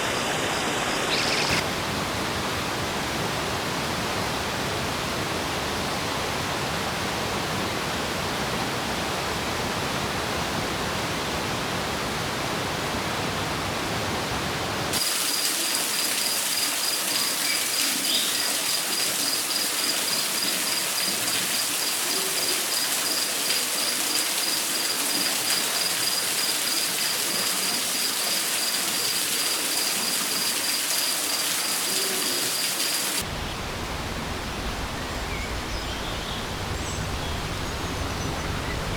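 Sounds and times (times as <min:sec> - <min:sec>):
rushing rain noise: 0:08.2 - 0:38.9.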